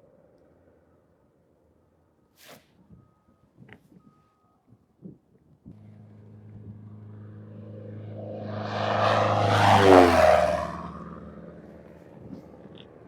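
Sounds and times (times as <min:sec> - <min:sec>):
aircraft engine low pass: 0:05.8 - 0:13.0.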